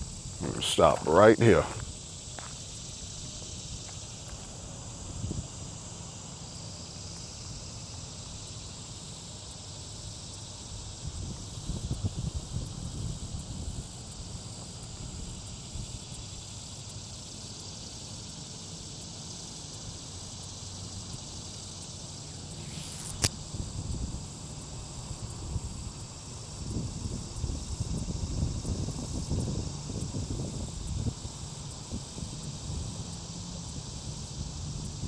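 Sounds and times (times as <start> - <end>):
steady high hiss: 0.0 - 11.6, 13.2 - 26.3
sharp click: 22.6 - 23.3.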